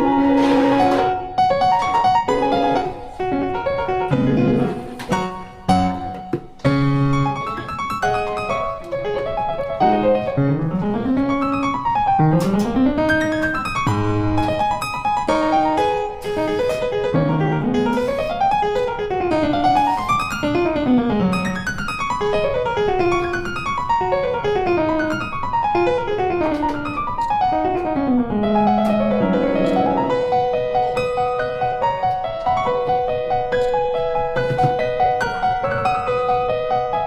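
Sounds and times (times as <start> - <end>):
piano playing fast runs: 0.0 - 37.0.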